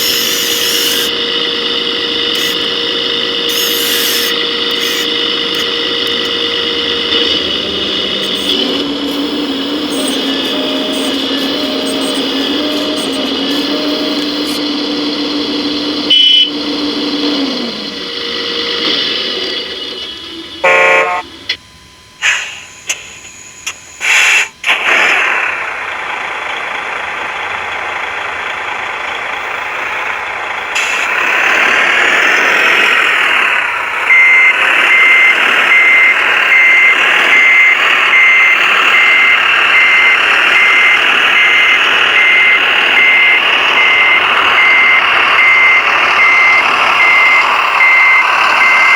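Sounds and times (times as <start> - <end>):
horn blast: 0.0 - 19.0, 20.6 - 21.2
small electric motors whining: 0.0 - 21.6, 29.1 - 48.9
electronic reversing beep: 0.0 - 24.0, 32.4 - 48.9.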